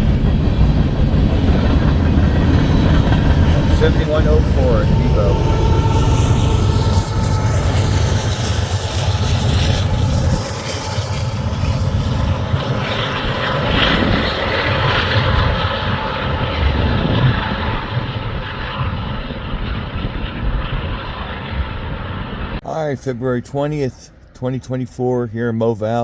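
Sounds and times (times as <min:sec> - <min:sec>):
steel wheels on rail: 0:00.0 - 0:13.2
locomotive engine rumbling: 0:00.0 - 0:24.7.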